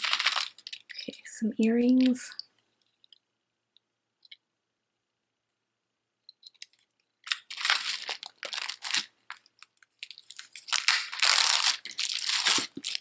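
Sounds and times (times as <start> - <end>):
plastic packaging crinkling: 0.0 - 3.2, 6.4 - 13.0.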